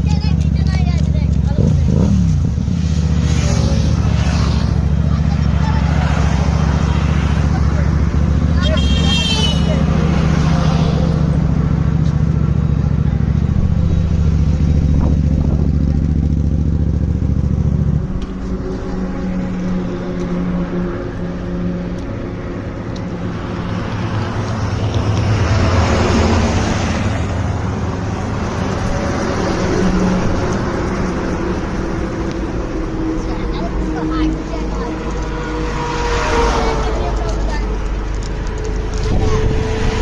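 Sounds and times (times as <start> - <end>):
traffic noise: 0.0 - 40.0
vehicle rushing past: 1.6 - 40.0
low engine drone: 9.6 - 40.0.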